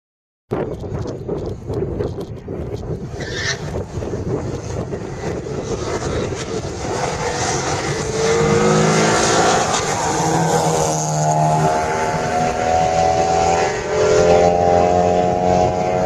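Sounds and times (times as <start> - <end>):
car engine running low: 0.6 - 16.0
car engine revving: 3.2 - 16.0.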